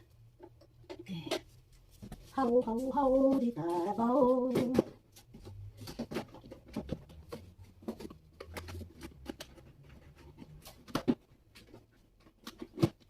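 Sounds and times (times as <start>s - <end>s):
packaging clicks and rustles: 0.2s - 13.0s.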